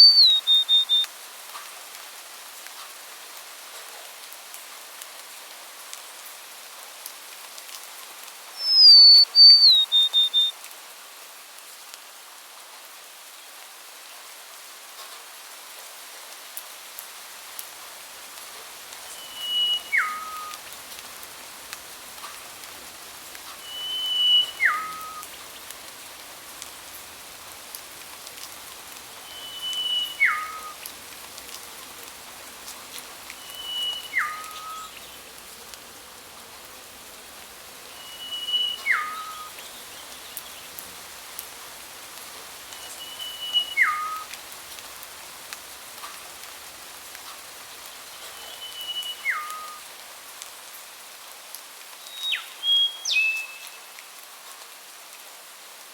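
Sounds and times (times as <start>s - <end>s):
bird whistled call: 0.0s - 1.1s, 8.6s - 10.6s, 19.1s - 20.6s, 23.5s - 25.4s, 29.1s - 30.9s, 33.3s - 35.2s, 37.9s - 40.7s, 42.7s - 44.3s, 48.1s - 49.8s, 52.0s - 53.9s
steady hiss with faint ticks: 0.0s - 55.9s.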